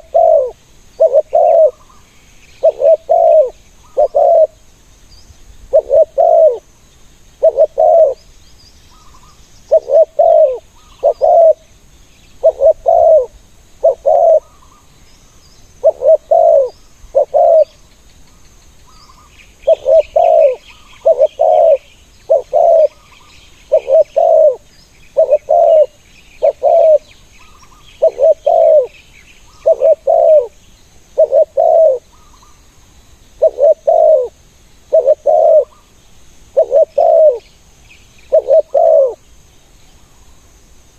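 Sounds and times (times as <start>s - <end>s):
doves cooing: 0.0s - 4.6s, 5.7s - 6.6s, 7.4s - 8.2s, 9.7s - 11.7s, 12.4s - 14.8s, 15.8s - 17.8s, 19.6s - 23.1s, 23.7s - 24.6s, 25.2s - 27.1s, 28.0s - 28.9s, 29.6s - 30.6s, 31.2s - 32.2s, 33.4s - 35.8s, 36.5s - 37.5s, 38.3s - 39.2s
small birds chirping: 0.0s - 40.4s.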